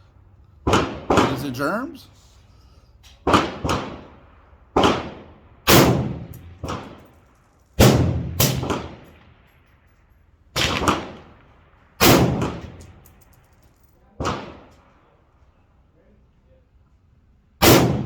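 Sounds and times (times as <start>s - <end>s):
rifle shots: 0.6s - 2.0s, 3.2s - 7.1s, 7.8s - 9.5s, 10.6s - 13.2s, 14.2s - 14.9s, 17.6s - 18.0s.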